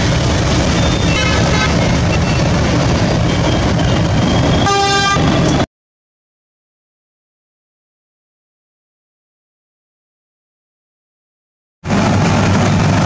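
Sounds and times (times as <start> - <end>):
train rumbling: 0.0 - 5.7, 11.8 - 13.0
train horn toots: 0.9 - 2.4, 4.6 - 5.4.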